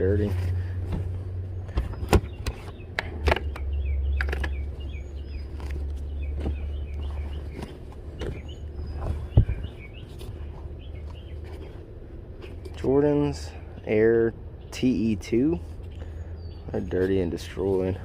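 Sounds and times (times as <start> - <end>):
low steady rumble: 0.0 - 18.0
small birds chirping: 0.0 - 18.0
clicks and knocks of handled items: 0.3 - 4.7.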